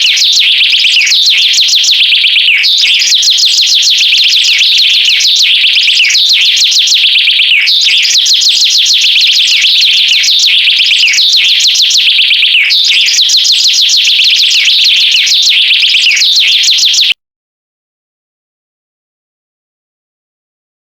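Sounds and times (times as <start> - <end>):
rapid high-pitched bird chirping: 0.0 - 17.2.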